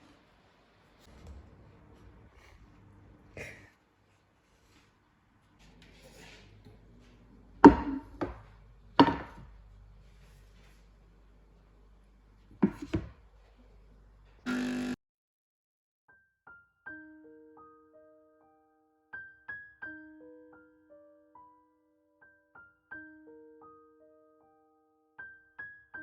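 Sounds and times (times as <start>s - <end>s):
sharp knocks and clunks: 7.6s - 9.5s, 12.6s - 13.2s
short buzz: 14.5s - 15.0s
soft piano music: 16.2s - 26.0s.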